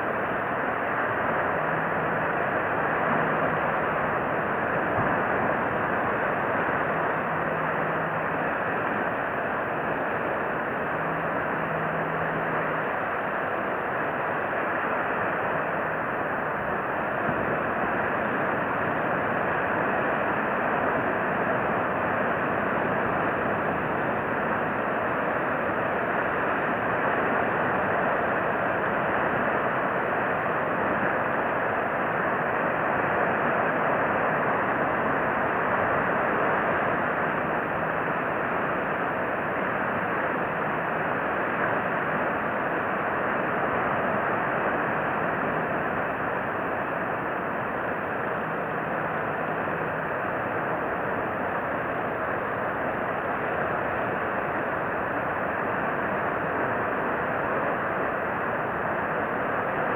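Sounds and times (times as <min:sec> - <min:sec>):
steady rushing noise: 0:00.0 - 0:59.9.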